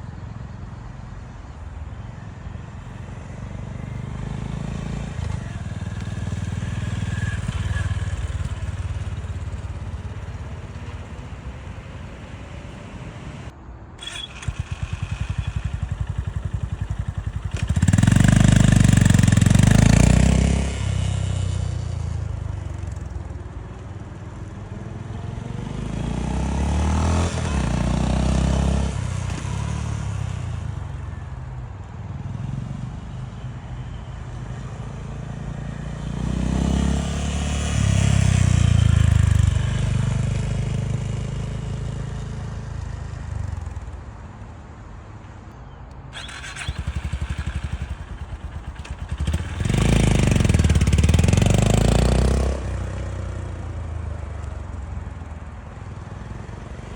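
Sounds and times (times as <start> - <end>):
motorcycle engine rumbling: 2.8 - 24.6, 46.1 - 56.9.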